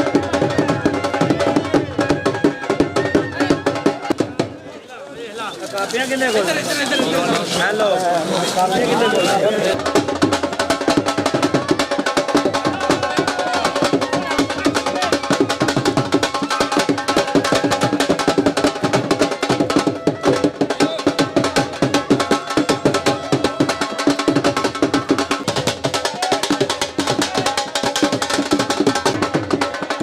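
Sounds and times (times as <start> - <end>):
drums in fast rhythm: 0.0 - 4.7, 5.4 - 30.0.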